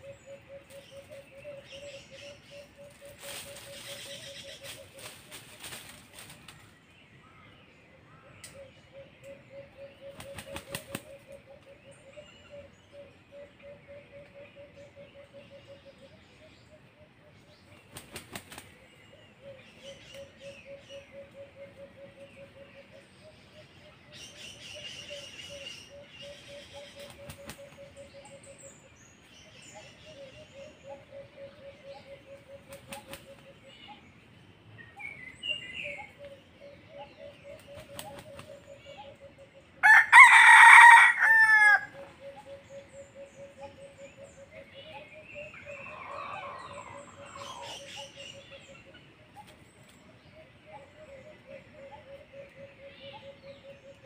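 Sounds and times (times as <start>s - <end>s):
rooster crowing: 39.8s - 42.0s.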